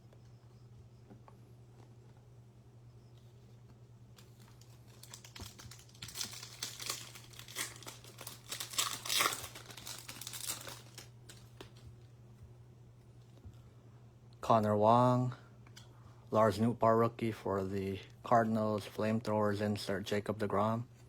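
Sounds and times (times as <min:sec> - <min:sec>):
foil wrapper tearing and crinkling: 0:04.2 - 0:11.8.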